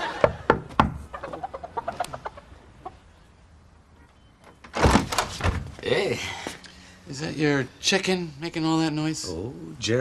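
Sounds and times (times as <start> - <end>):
rooster clucking: 1.0 - 3.1.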